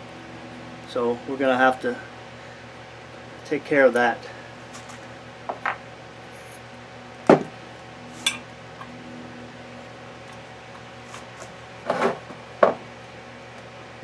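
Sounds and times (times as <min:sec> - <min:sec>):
metal parts clinking and knocking: 0:04.6 - 0:05.1, 0:08.1 - 0:08.4.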